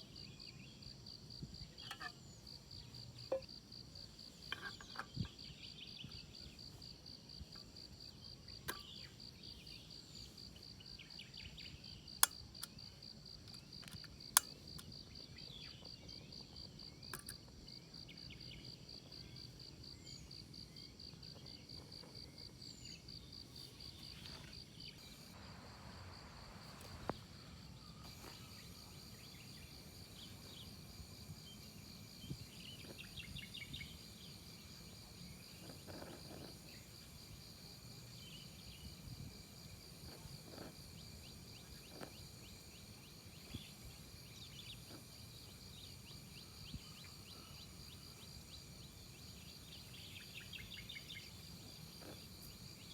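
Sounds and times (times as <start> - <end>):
insects trilling: 0.0 - 52.9
sharp clicks: 12.2 - 12.8.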